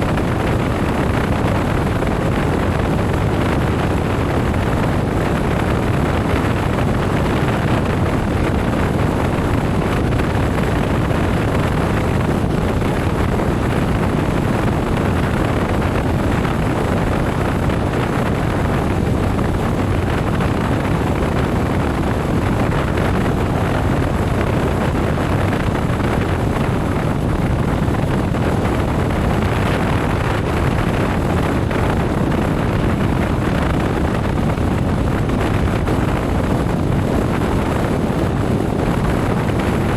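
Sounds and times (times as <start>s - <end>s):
wind rush on microphone: 0.0s - 39.9s.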